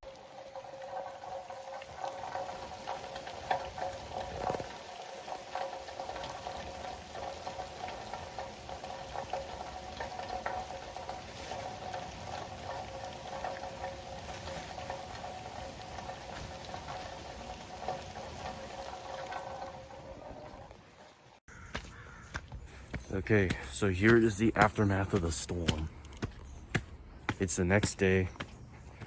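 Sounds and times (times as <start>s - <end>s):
rain falling: 0.0s - 21.4s.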